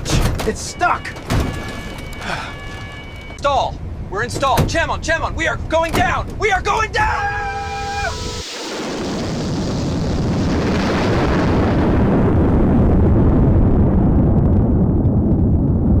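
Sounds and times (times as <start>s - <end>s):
explosion with deep rumble: 7.4s - 16.0s.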